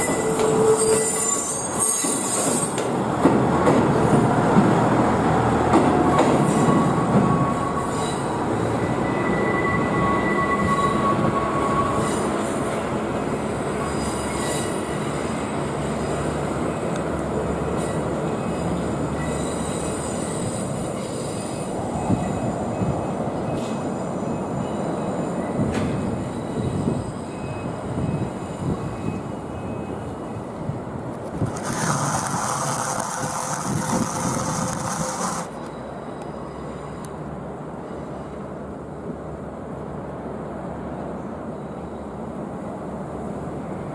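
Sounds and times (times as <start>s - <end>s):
high wheel squeals: 0.0s - 2.8s, 6.1s - 12.7s, 17.8s - 22.9s, 31.6s - 37.1s
train wheels rumbling on rail: 0.0s - 43.9s.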